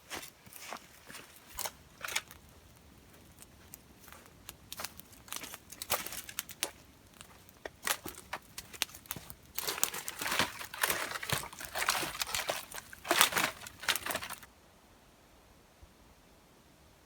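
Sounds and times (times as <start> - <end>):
dense crinkling and crackling: 0.0 - 14.5.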